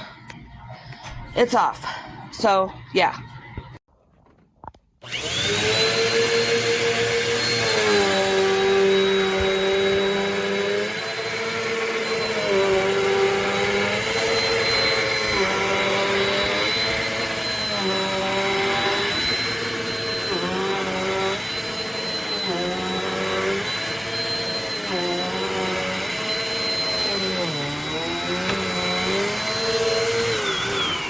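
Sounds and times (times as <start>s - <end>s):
vacuum cleaner running: 5.0s - 31.0s.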